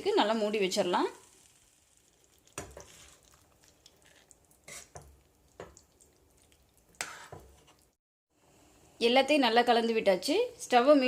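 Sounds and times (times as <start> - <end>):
spoon stirring in gravy: 2.2 - 8.0.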